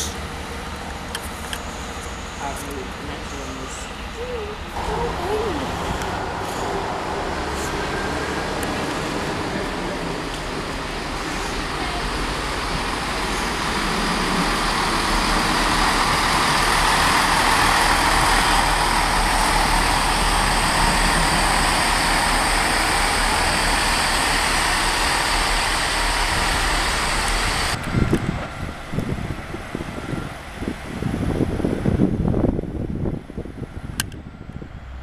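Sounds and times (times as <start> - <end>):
train wheels on rails rushing: 0.0 - 34.1
wind buffeting the microphone: 27.8 - 35.0.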